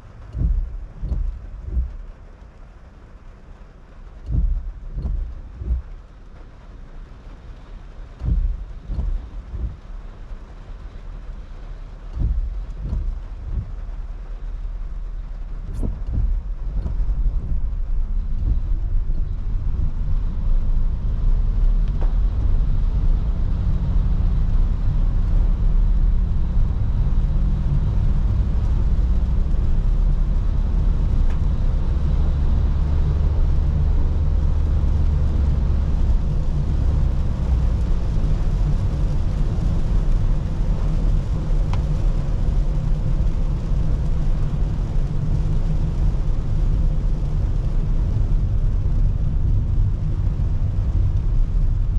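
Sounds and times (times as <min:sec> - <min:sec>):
car road rumble: 0:00.0 - 0:51.9
rain hiss on wet road: 0:00.0 - 0:51.9.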